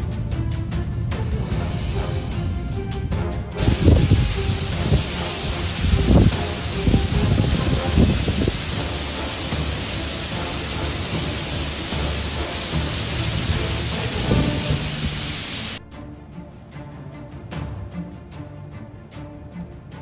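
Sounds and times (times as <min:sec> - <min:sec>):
loud rushing hiss: 0:03.6 - 0:15.8.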